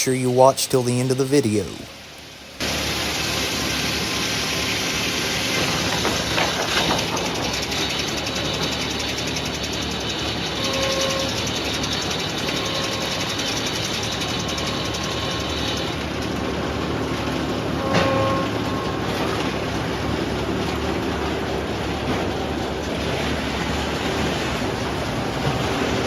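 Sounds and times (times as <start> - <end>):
faint machine whine: 0.0 - 26.0
sawmill mechanical din: 0.0 - 26.0.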